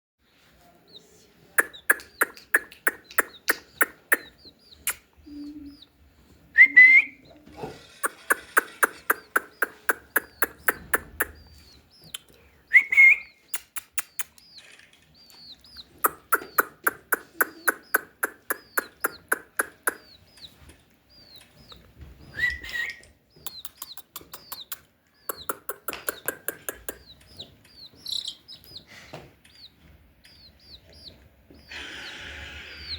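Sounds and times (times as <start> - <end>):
faint high chirps: 0.9 - 6.0
bird clucking rapidly: 1.6 - 5.4, 7.6 - 11.5, 15.8 - 20.5, 22.5 - 27.4
rising squawk: 31.7 - 32.9.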